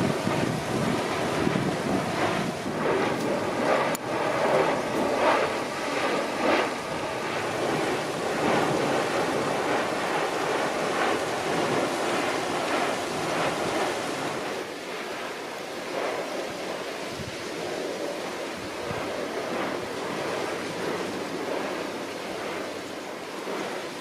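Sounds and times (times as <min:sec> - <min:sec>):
waves rushing: 0:00.0 - 0:14.7
wind buffeting microphone: 0:00.0 - 0:14.8, 0:16.4 - 0:24.0.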